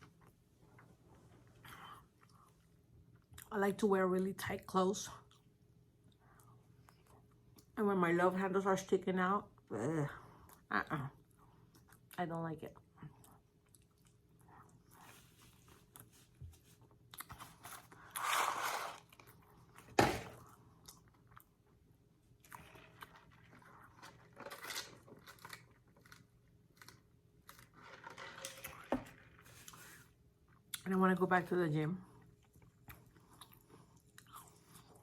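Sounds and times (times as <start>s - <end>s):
chewing and crunching food: 10.3s - 18.4s, 19.0s - 30.9s, 32.0s - 35.0s.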